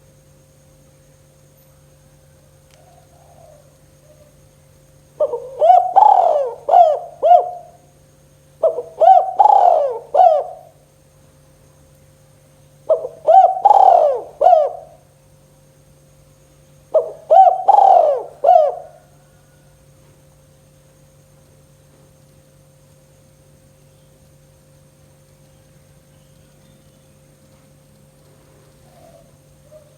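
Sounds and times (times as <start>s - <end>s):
faint steady hum: 0.0s - 29.9s
dove cooing: 2.8s - 4.4s, 5.2s - 7.8s, 8.6s - 10.8s, 12.9s - 15.1s, 16.9s - 19.6s, 28.8s - 29.9s.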